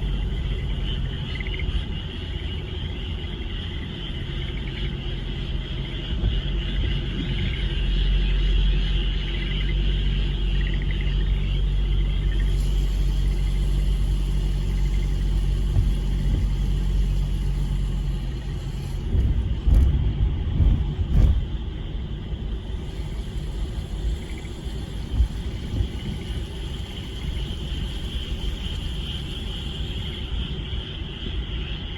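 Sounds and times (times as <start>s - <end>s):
frogs chorus: 0.0s - 19.8s, 22.2s - 31.9s
vehicle engine rumble: 0.0s - 31.9s
low thumps: 19.0s - 22.0s.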